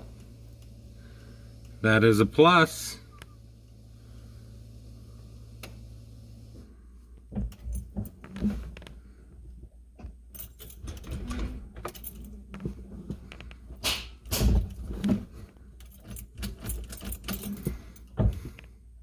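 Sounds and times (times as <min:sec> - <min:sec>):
low steady rumble: 0:00.0 - 0:13.8
keys jangling: 0:10.3 - 0:12.4, 0:15.8 - 0:18.2
handling clicks and rattles: 0:14.2 - 0:18.7.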